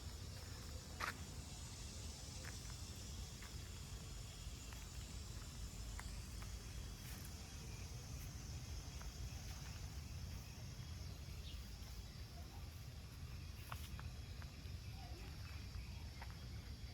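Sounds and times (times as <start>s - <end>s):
faint high-pitched hiss: 0.0s - 16.9s.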